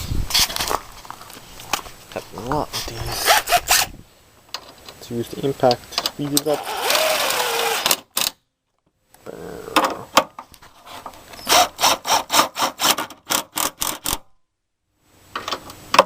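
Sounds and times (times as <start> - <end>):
impact wrench running: 6.5 - 8.0.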